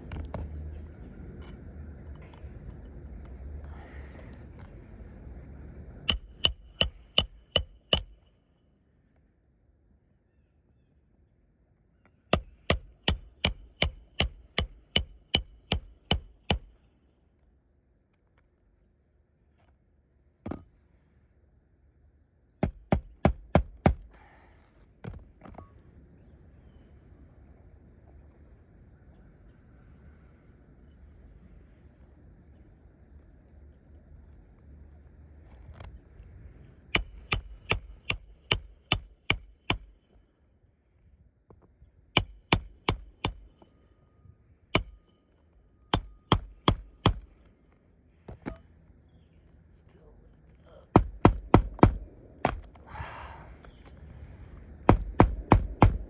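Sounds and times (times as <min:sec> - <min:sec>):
hammer striking a nail: 0:06.1 - 0:08.5, 0:12.3 - 0:16.8, 0:22.6 - 0:24.2, 0:36.9 - 0:40.2, 0:42.2 - 0:43.7, 0:44.8 - 0:45.1, 0:45.9 - 0:47.4, 0:50.9 - 0:52.7, 0:54.9 - 0:56.0.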